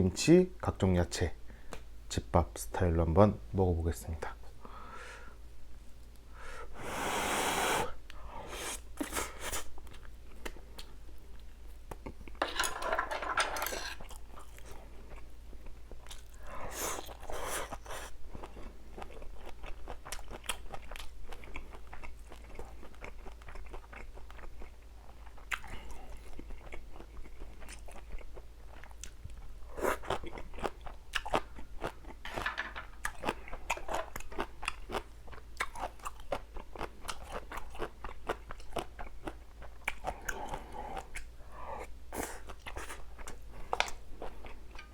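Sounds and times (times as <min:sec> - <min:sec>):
person chewing and crunching food: 0:08.5 - 0:12.4, 0:13.8 - 0:44.9.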